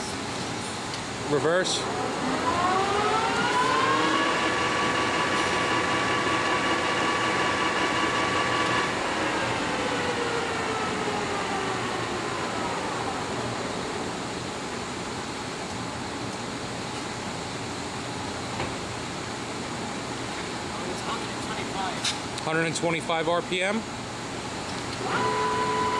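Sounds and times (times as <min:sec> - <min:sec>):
lathe gearing whining: 0:01.8 - 0:14.3, 0:25.0 - 0:25.9.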